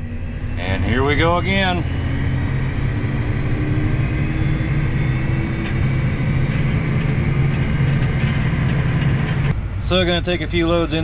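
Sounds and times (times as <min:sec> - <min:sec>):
farm vehicle engine droning: 0:00.0 - 0:11.0.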